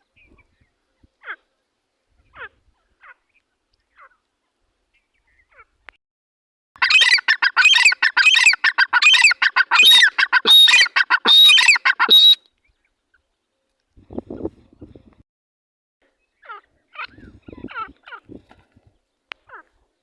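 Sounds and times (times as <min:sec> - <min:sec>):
francolin calling harshly: 0:06.8 - 0:12.4.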